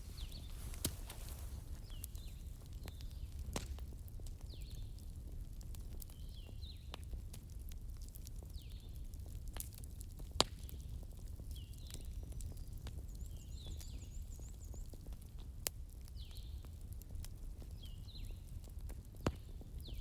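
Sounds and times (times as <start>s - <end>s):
loud pops from fire: 0.0s - 4.7s
wood fire crackling: 0.0s - 20.0s.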